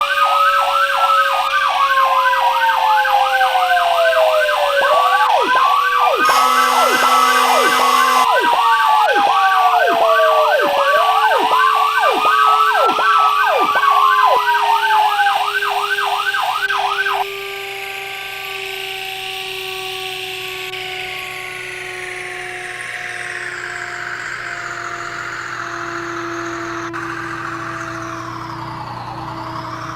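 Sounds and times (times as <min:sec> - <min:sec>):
steady vehicle sound: 0:00.0 - 0:17.4, 0:21.2 - 0:29.9
fire engine sirens: 0:00.0 - 0:29.9
horn blast: 0:06.0 - 0:13.7.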